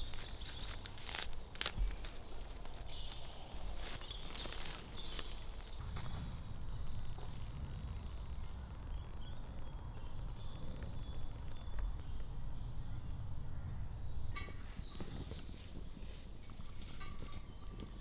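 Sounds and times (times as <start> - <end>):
small birds chirping: 0.0 - 18.0
low rumble: 5.0 - 14.6.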